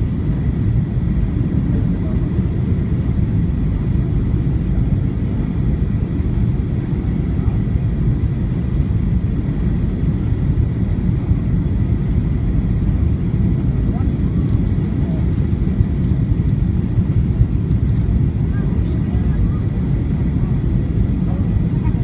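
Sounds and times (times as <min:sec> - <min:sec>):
airplane cabin engine rumble: 0:00.0 - 0:22.0.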